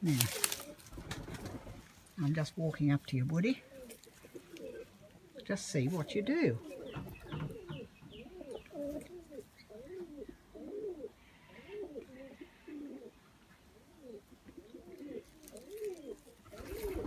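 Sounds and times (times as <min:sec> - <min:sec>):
pigeon cooing: 0:03.6 - 0:17.0.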